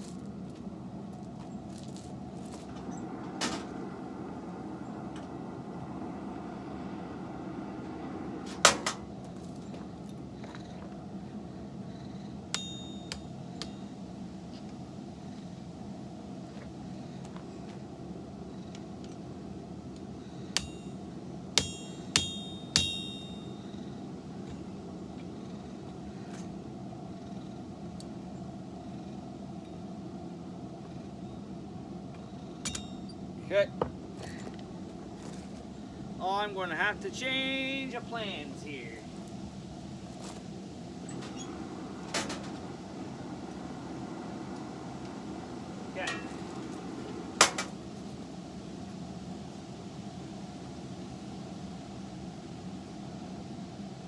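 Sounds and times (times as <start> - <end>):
steady low hum: 0.0 - 54.0
hammer blows on steel: 12.5 - 13.9, 20.5 - 23.7, 32.6 - 33.1, 46.0 - 46.6.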